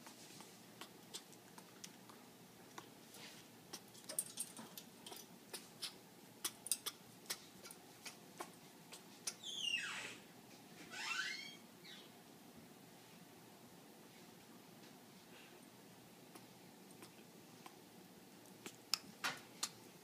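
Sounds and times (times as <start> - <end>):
parrot whistled call: 9.4 - 10.2
parrot rising call: 10.9 - 11.6.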